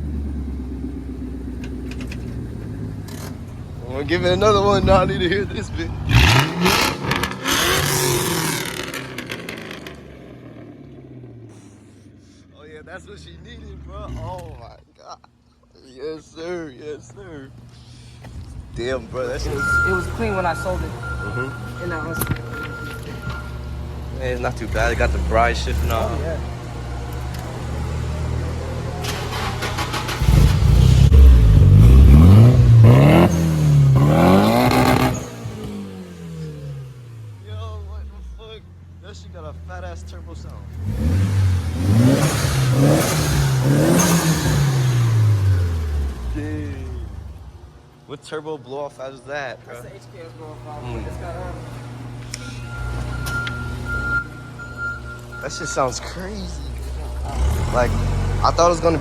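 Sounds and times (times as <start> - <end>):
car engine revving: 0.0 - 14.8, 18.8 - 48.0, 50.0 - 59.0
faint high turbo whistle: 19.4 - 23.7, 52.2 - 56.7.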